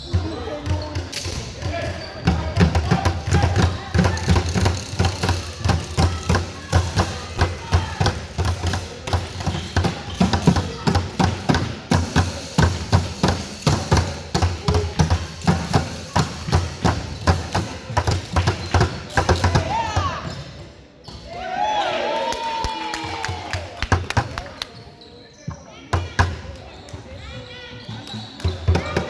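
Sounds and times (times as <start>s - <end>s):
shoe squeaks: 0.0s - 2.5s, 9.4s - 10.8s, 24.7s - 29.0s
basketballs bouncing on court: 0.0s - 21.2s, 25.5s - 29.0s.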